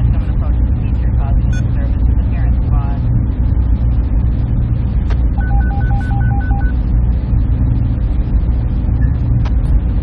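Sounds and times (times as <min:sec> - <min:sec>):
loud low machine drone: 0:00.0 - 0:10.0
short electronic beeps: 0:05.4 - 0:06.8.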